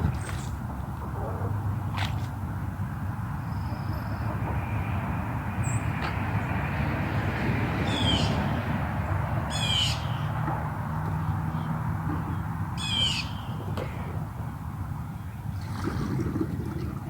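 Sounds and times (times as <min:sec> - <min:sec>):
harsh high-pitched bird calls: 0:09.5 - 0:10.3, 0:12.8 - 0:13.6.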